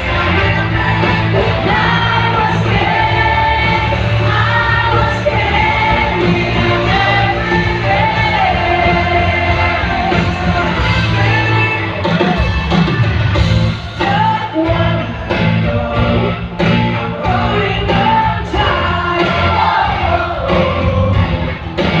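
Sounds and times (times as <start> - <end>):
rock band playing: 0.0 - 22.0
man singing and shouting: 13.9 - 21.4.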